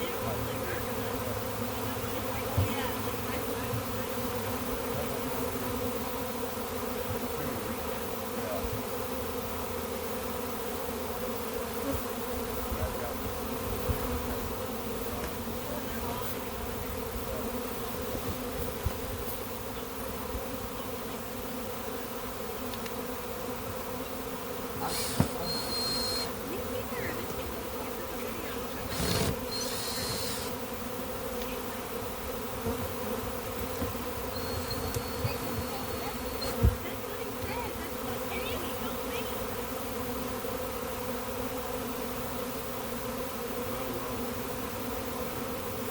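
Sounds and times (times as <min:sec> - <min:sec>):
bee swarm buzzing: 0:00.0 - 0:45.9
scratchy noises: 0:24.8 - 0:30.6, 0:33.6 - 0:38.8.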